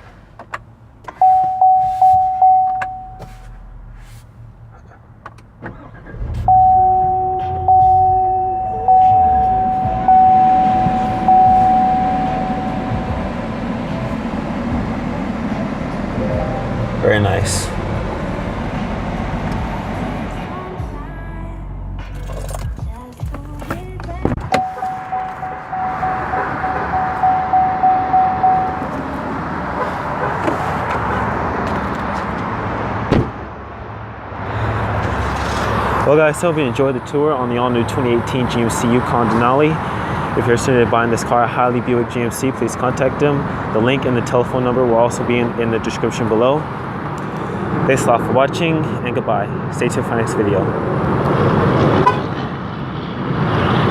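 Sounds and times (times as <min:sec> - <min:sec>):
car warning chime: 0:01.2 - 0:03.3, 0:06.4 - 0:14.8, 0:15.6 - 0:17.6, 0:24.5 - 0:29.0
engine running: 0:05.6 - 0:22.7
sharp thump: 0:33.1 - 0:33.4.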